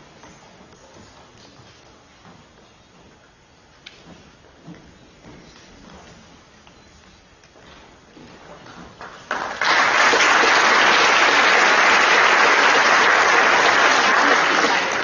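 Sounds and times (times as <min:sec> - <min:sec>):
audience applauding: 0:09.0 - 0:15.0.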